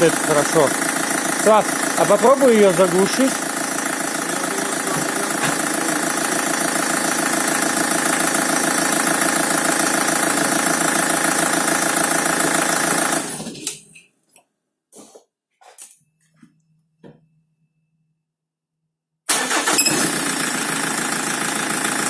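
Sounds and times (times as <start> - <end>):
diesel engine idling: 0.0 - 13.4, 19.3 - 22.0.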